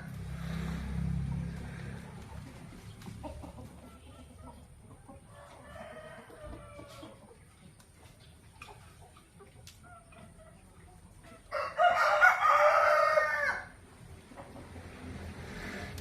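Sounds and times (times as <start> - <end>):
faint chicken clucking: 0.0 - 15.0
rooster crowing: 5.3 - 7.1, 11.5 - 13.8.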